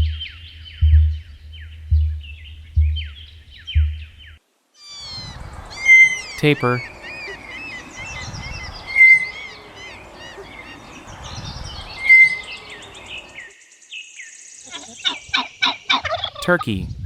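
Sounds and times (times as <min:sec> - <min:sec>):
tapir whistling squeals: 0:04.9 - 0:13.0.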